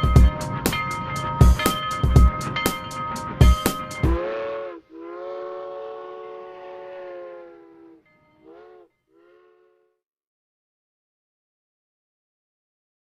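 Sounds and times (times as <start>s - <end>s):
train horn blasts: 3.4s - 10.0s.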